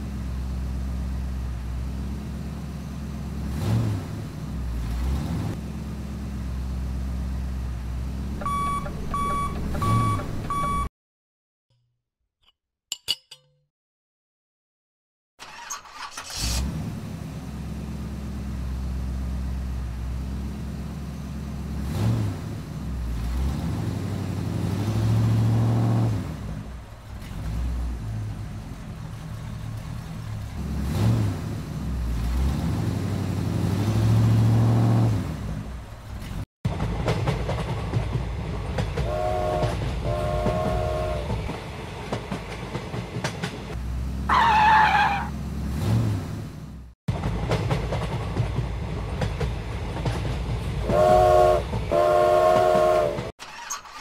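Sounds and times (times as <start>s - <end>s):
high toy train whistle: 39.1s - 41.4s, 50.9s - 53.3s.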